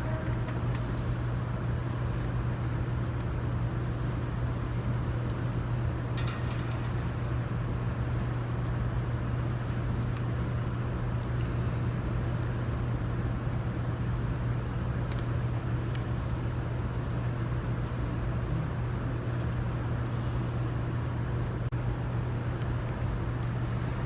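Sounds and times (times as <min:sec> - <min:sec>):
low room hum and rumble: 0:00.0 - 0:24.0
faint clicks: 0:22.6 - 0:23.6.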